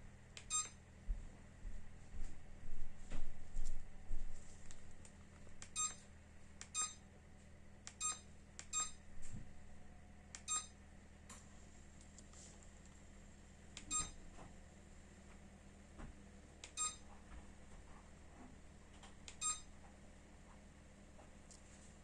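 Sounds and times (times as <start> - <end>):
steady low hum: 0.0 - 22.0
short high beeps: 0.5 - 0.8, 5.8 - 6.0, 6.8 - 7.0, 10.5 - 10.7, 19.4 - 19.6.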